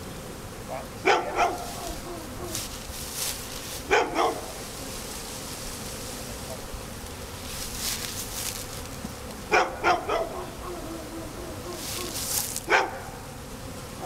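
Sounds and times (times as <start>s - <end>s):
bees buzzing: 0.0s - 14.0s
dog barking: 1.0s - 2.6s, 3.9s - 4.5s, 9.5s - 13.2s.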